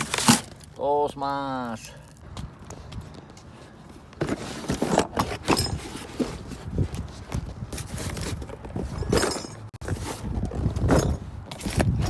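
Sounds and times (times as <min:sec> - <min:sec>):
metal hardware clanking and rattling: 0:04.6 - 0:06.2, 0:07.8 - 0:09.8.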